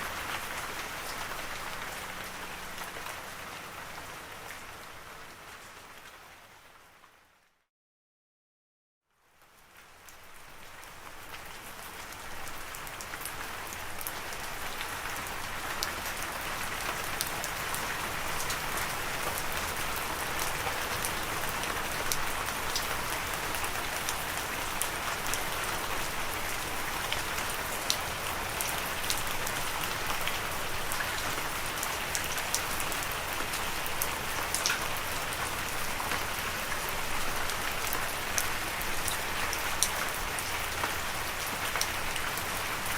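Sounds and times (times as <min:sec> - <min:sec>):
steady rain falling: 0:00.0 - 0:07.6, 0:09.1 - 0:42.9.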